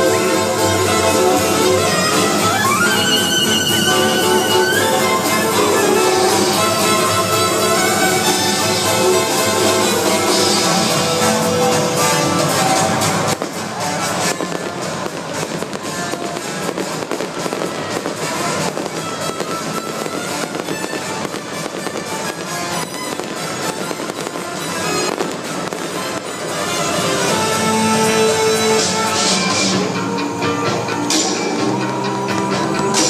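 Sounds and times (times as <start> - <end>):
fireworks crackling and popping: 0.0 - 29.9
loud music: 0.0 - 33.0.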